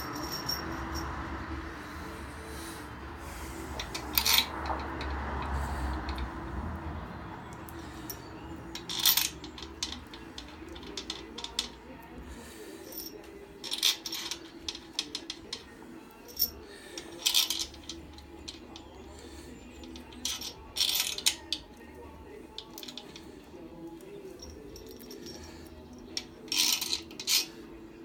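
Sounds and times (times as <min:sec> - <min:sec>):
bolts clinking against metal: 0:03.8 - 0:06.3, 0:07.5 - 0:12.1, 0:12.8 - 0:23.5, 0:24.2 - 0:27.7.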